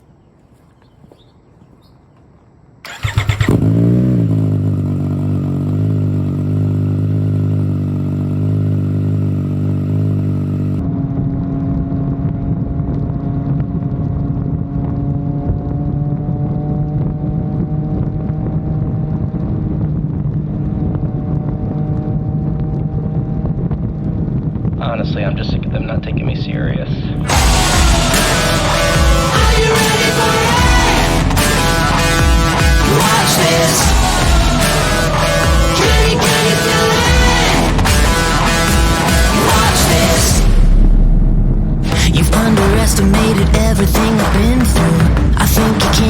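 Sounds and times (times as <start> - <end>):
motorcycle engine starting and idling: 2.8 - 11.2, 27.2 - 46.0.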